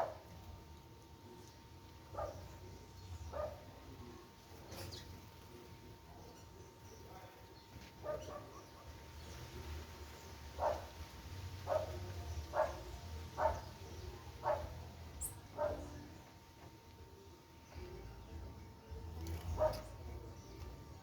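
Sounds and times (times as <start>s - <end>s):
dog barking: 0.0s - 0.3s, 2.1s - 2.5s, 3.3s - 3.7s, 8.0s - 8.9s, 10.6s - 11.0s, 11.6s - 13.8s, 14.4s - 14.8s, 15.5s - 16.0s, 19.5s - 20.0s.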